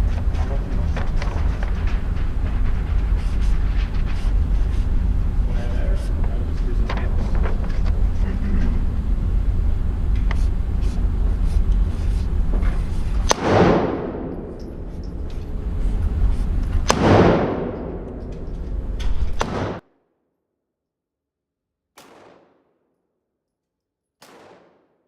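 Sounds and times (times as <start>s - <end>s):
low background rumble: 0.0s - 19.8s
pistol shots with echo: 13.3s - 14.6s, 16.8s - 18.4s, 19.3s - 19.8s, 22.0s - 22.8s, 24.2s - 25.0s.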